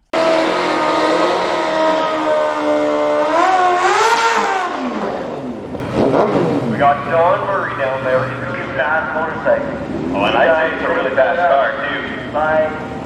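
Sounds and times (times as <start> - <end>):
racing engine at high revs: 0.0 - 11.0.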